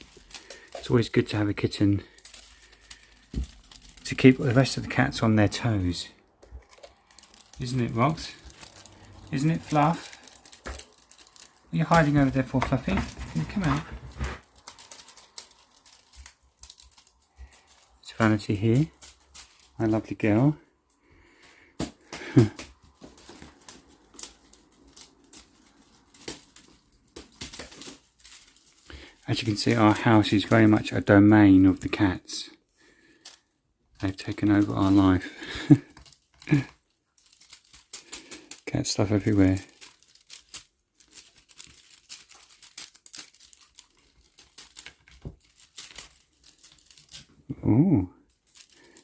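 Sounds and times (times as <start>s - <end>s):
clicks of small hard objects: 0.0s - 20.0s, 34.0s - 47.4s
plastic crinkling and rustling: 0.0s - 49.0s.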